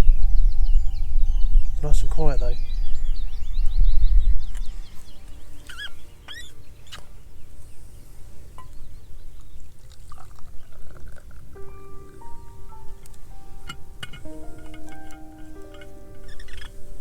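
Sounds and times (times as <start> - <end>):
faint background music: 0.0 - 9.9, 10.6 - 17.0
bird chirps: 0.0 - 17.0
chime-like music notes: 11.6 - 17.0.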